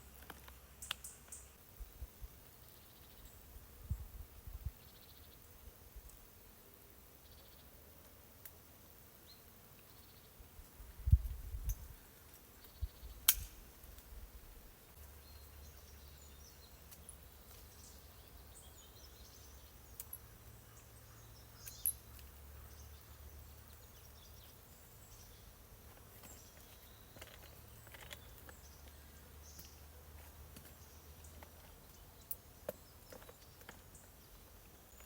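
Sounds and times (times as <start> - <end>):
small bird chirps: 14.9 - 35.0.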